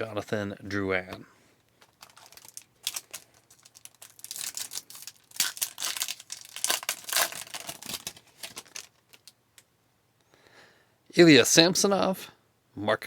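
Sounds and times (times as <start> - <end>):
foil wrapper tearing and crinkling: 1.8 - 9.4.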